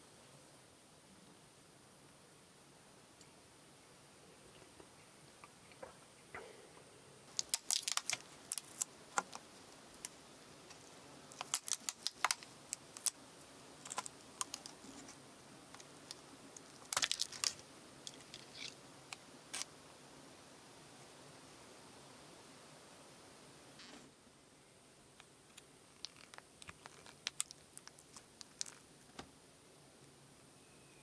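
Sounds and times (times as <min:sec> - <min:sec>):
faint hiss: 0:00.0 - 0:31.0.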